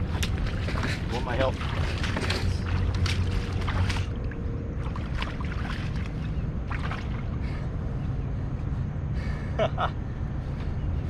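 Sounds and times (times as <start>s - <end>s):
water splashes: 0.0s - 7.6s
low background rumble: 0.0s - 11.0s.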